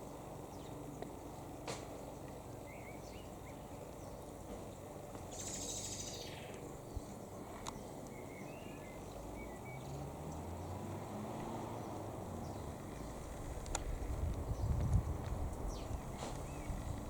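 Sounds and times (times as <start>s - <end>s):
bird chirps: 2.6s - 10.0s
steady low rumble: 12.0s - 17.0s.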